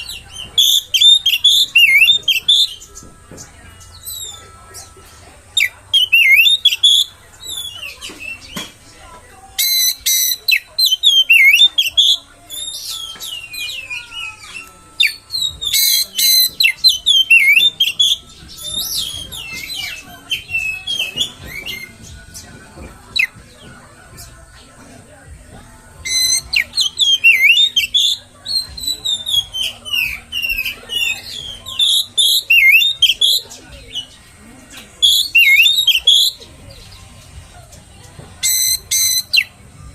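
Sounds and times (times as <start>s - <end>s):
bird singing whistled phrases: 0.0s - 2.9s, 5.6s - 8.7s, 9.6s - 22.1s, 26.1s - 34.2s, 35.0s - 36.4s, 38.4s - 39.5s.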